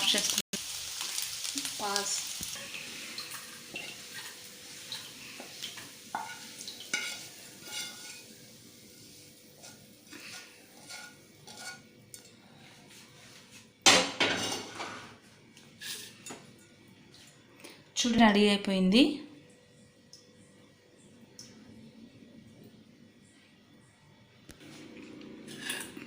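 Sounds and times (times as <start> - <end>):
egg sizzling: 0.0 - 12.3
metal spoon scraping a pan: 2.6 - 12.6, 14.2 - 15.2, 15.8 - 16.4, 25.4 - 26.0.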